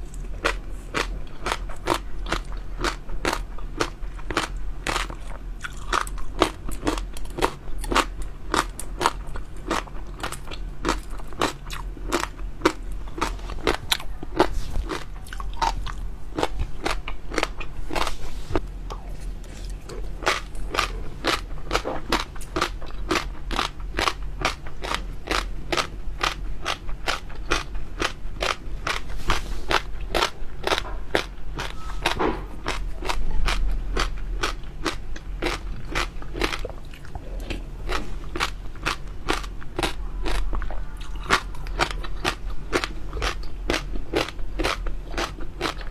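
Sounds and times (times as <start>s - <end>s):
crunchy chewing: 0.0s - 45.9s.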